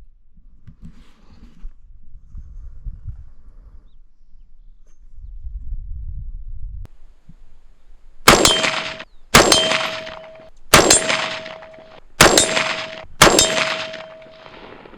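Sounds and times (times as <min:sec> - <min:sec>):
steel target ringing: 0:08.3 - 0:14.8
rifle shots: 0:08.3 - 0:14.9.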